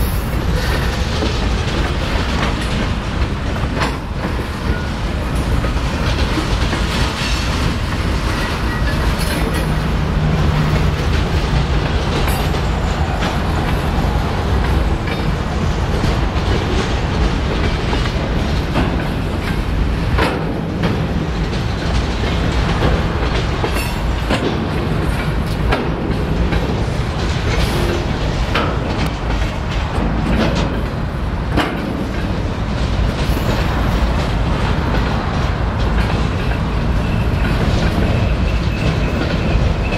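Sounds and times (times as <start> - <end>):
freight cars rumbling on rails: 0.0 - 39.9
sharp clicks and clunks: 10.7 - 39.9.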